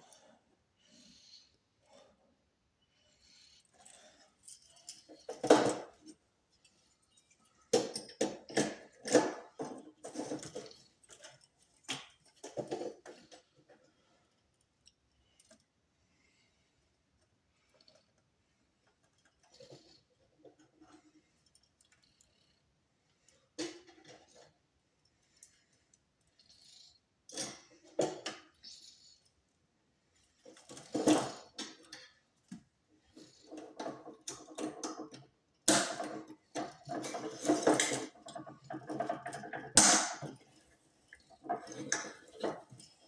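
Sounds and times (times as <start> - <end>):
clattering and rattling: 33.2 - 43.0
hard objects clicking and knocking: 33.5 - 40.5.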